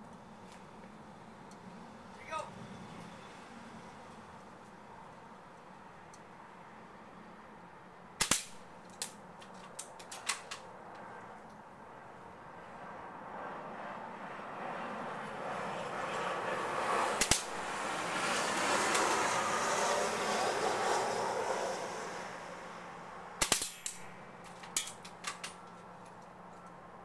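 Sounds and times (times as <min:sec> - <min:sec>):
airsoft rifle firing snap: 0:08.2 - 0:09.2, 0:17.2 - 0:17.6, 0:23.4 - 0:24.1
broad rush of noise: 0:10.0 - 0:25.8
quick clicks and snaps: 0:17.2 - 0:17.5.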